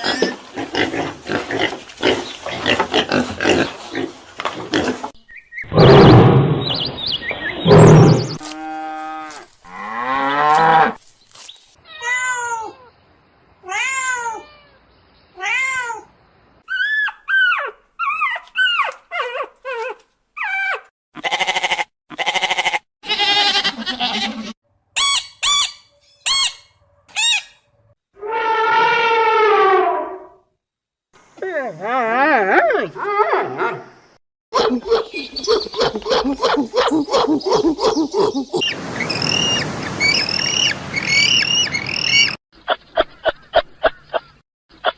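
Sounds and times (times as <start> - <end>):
animal cries rising and falling: 28.2 - 30.4.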